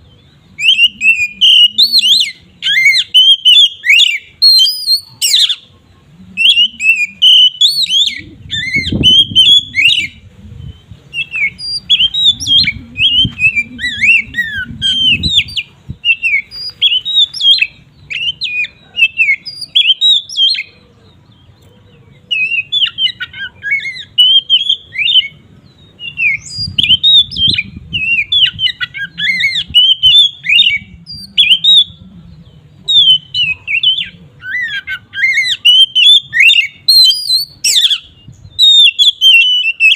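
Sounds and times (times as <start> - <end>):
magpie-robin singing: 0.0 - 39.9
low rumble: 11.8 - 16.1.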